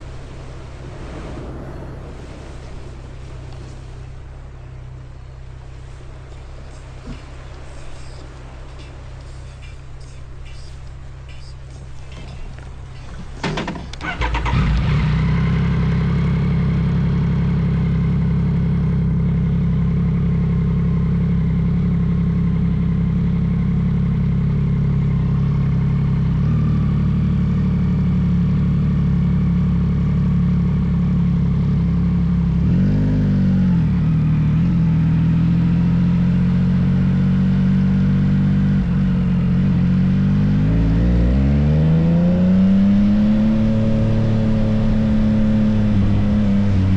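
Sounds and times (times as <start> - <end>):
motorcycle engine starting and idling: 12.1 - 40.8.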